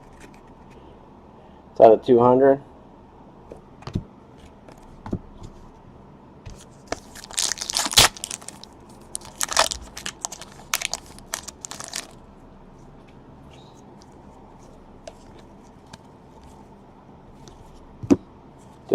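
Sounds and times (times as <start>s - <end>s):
packaging crinkling and tearing: 7.0s - 12.2s.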